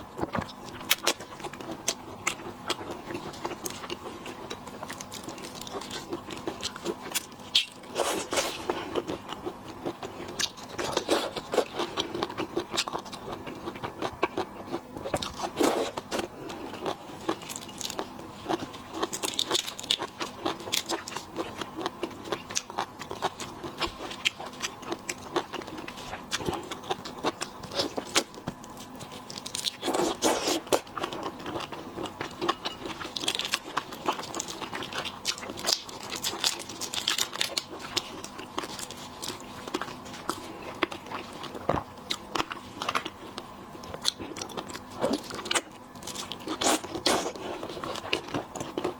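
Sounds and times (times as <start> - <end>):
heavy chewing crunches: 0.2 - 48.9
shells cracking and crunching: 16.8 - 41.6.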